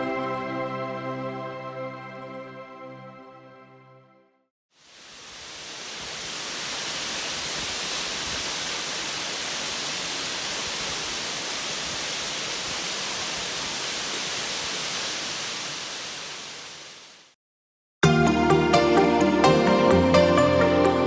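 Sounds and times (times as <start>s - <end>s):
waterfall roaring: 4.9s - 17.3s.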